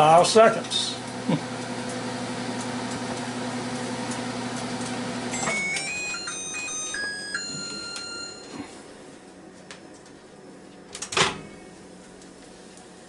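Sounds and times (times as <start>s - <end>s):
microwave oven humming: 0.0s - 13.0s
electronic beeps tune: 5.3s - 8.7s.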